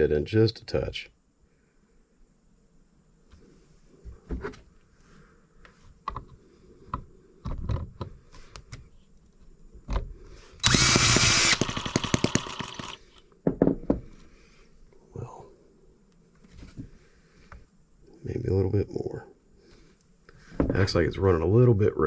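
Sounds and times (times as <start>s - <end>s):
power drill whirring: 10.6s - 13.1s
person talking: 20.7s - 22.0s.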